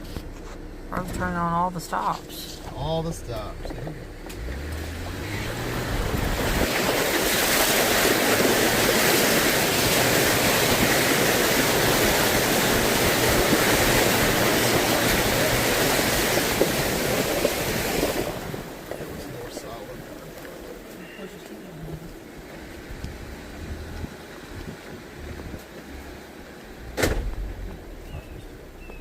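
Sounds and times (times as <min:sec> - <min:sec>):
faint engine: 0:00.0 - 0:29.0
water spraying and sloshing: 0:04.4 - 0:20.9.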